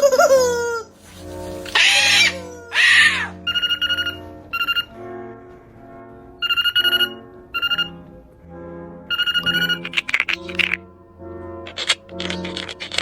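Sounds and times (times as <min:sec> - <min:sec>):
soft background music: 0:00.0 - 0:13.0
loud screeches: 0:01.7 - 0:03.3.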